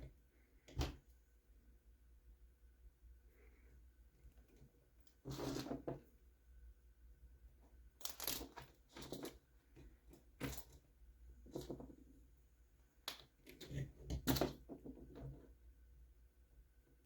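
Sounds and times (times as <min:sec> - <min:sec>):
small parts clicking and rattling: 0:08.0 - 0:11.9.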